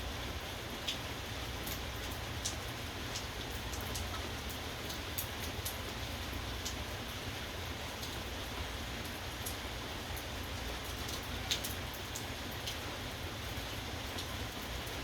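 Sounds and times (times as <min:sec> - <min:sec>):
rain falling: 0:00.1 - 0:15.0
raindrops tapping close by: 0:00.8 - 0:07.2, 0:09.0 - 0:12.9.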